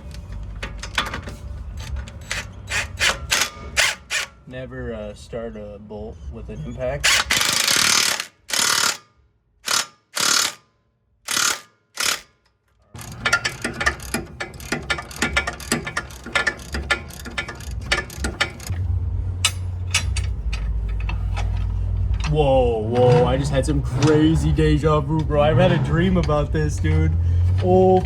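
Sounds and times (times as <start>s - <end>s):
ratchet wrench clicking: 0.0s - 4.4s, 7.1s - 10.7s, 11.3s - 12.4s, 13.0s - 18.8s, 19.4s - 22.4s
low steady hum: 13.0s - 28.0s.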